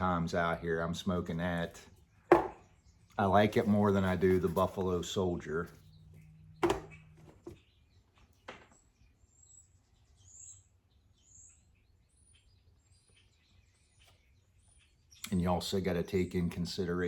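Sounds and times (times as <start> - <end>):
sharp short thud: 2.3 - 2.6
faint high bird chirps: 5.5 - 16.8.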